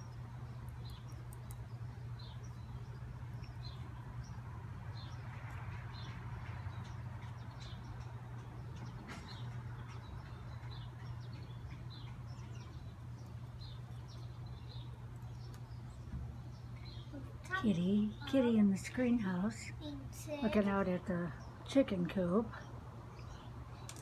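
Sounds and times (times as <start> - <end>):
small bird chirping: 0.0 - 5.3.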